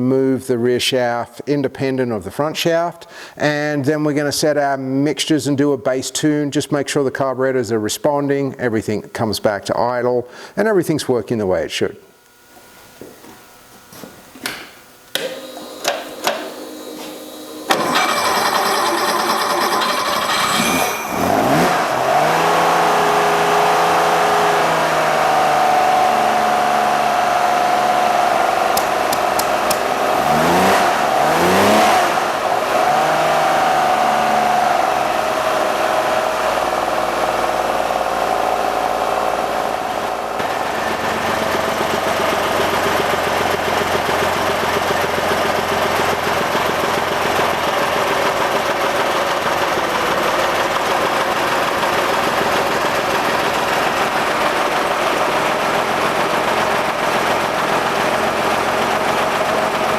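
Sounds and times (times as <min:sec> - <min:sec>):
engine idling: 0:15.4 - 0:24.2, 0:34.8 - 0:59.9.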